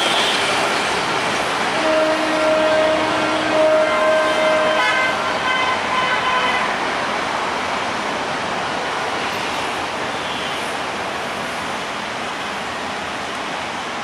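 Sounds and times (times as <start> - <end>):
train wheel and rail noise: 0.0 - 14.0
high-pitched train horn: 1.8 - 6.8
low train horn: 1.8 - 6.8.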